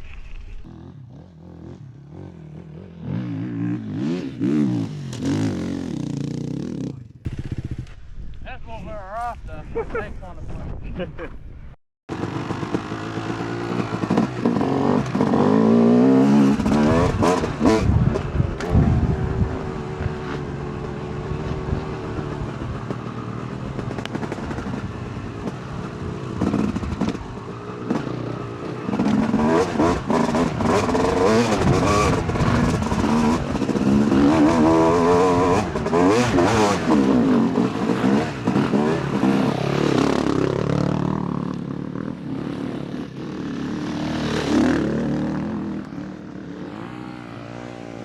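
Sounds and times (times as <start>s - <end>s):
dirt bike engine revving: 0.6s - 8.0s, 12.1s - 48.0s.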